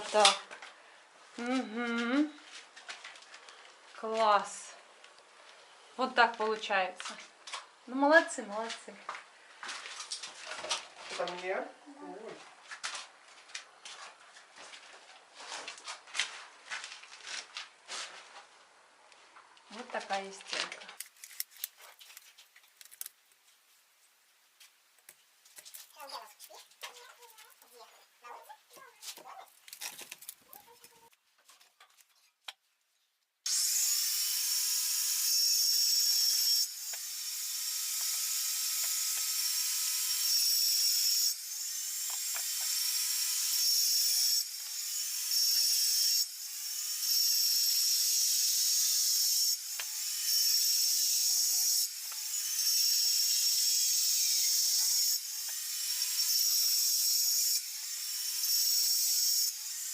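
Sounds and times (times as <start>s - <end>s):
power cutting tool hissing: 33.5s - 45.7s.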